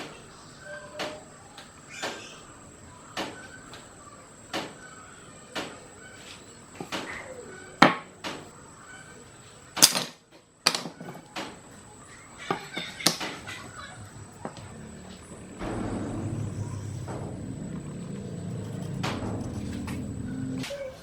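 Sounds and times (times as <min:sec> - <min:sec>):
faint high whine: 0:14.1 - 0:21.0
sharp knocks and clicks: 0:14.4 - 0:20.8.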